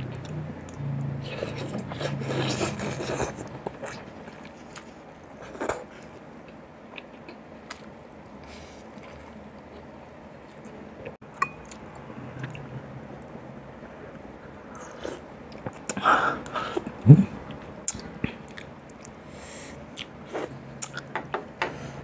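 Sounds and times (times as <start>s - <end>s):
wet chewing and mouth sounds: 6.9s - 9.9s.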